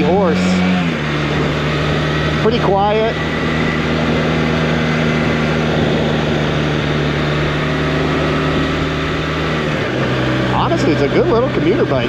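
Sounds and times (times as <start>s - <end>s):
motorcycle engine cruising: 0.0s - 12.0s
wind rushing: 3.1s - 9.4s.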